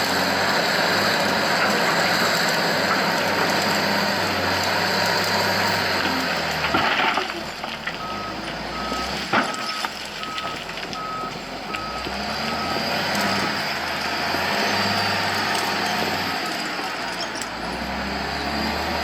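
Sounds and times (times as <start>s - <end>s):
diesel engine running: 0.0s - 19.0s
reversing alarm beeping: 8.0s - 16.5s.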